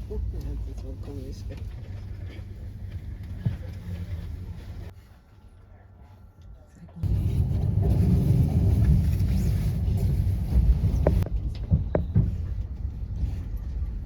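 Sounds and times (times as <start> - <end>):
loud low rumble: 7.0 - 14.0.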